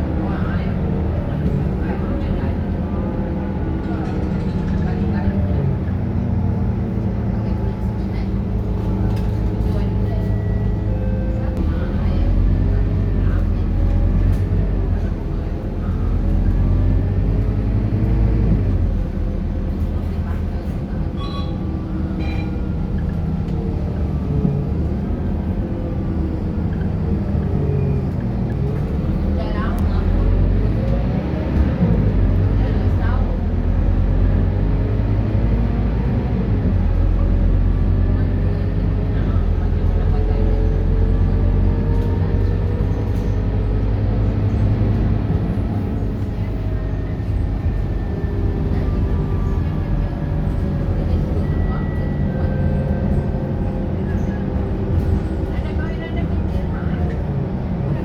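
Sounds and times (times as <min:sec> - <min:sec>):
bus diesel engine droning: 0:00.0 - 0:58.0.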